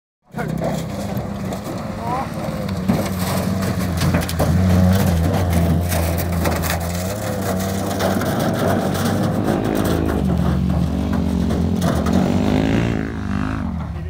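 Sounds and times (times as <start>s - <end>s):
car engine droning: 0.3s - 14.0s
washing machine scraping along ground: 2.9s - 13.1s.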